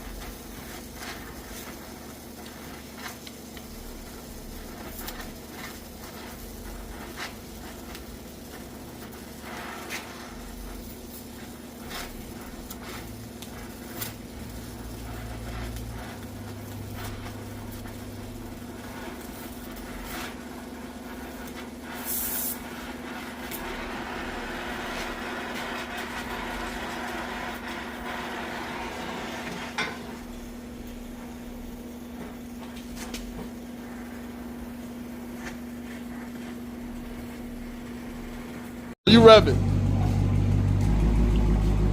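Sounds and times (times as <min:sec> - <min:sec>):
hissing air burst: 0:00.0 - 0:32.6
steady hum: 0:00.0 - 0:41.9.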